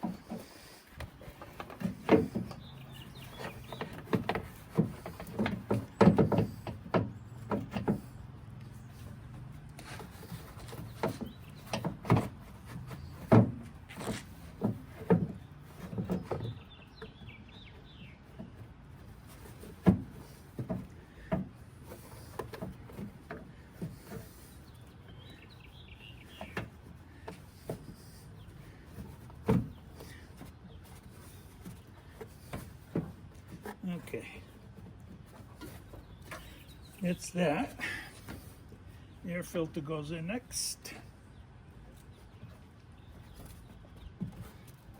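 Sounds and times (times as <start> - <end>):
knocks and clicks of parts handled: 0.0 - 8.7
bird chirping: 2.1 - 4.6, 10.6 - 11.9, 16.0 - 18.5, 24.4 - 26.7, 35.7 - 38.2.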